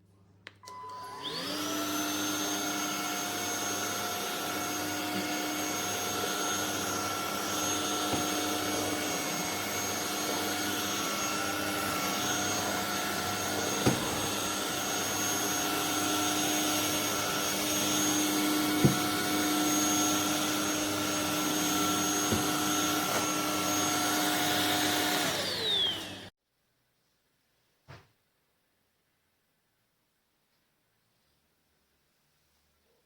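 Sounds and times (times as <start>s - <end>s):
stick vacuum motor whine: 0.6s - 26.3s.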